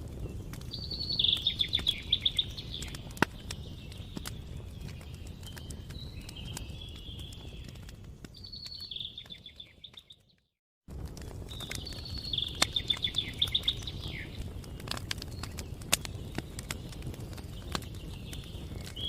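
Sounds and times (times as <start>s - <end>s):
campfire crackling and popping: 0.0s - 19.0s
songbird trilling: 0.8s - 3.0s, 11.8s - 14.4s.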